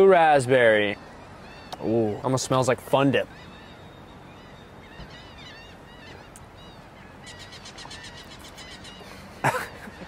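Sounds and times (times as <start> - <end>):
birds chirping: 0.0 - 10.0
faint outdoor hum: 0.0 - 10.0.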